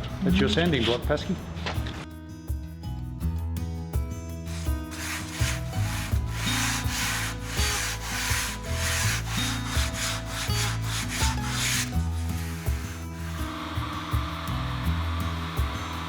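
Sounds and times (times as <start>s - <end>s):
sanding block rasping on foam: 4.5s - 13.7s.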